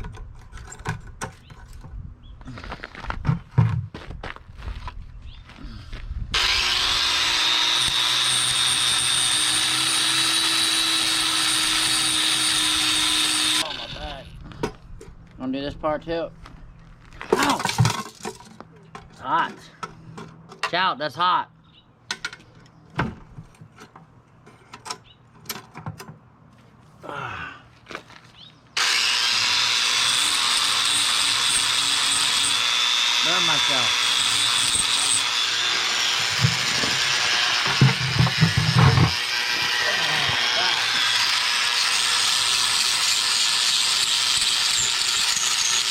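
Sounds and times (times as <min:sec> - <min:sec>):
angle grinder spinning: 0:06.4 - 0:14.0, 0:28.8 - 0:45.9.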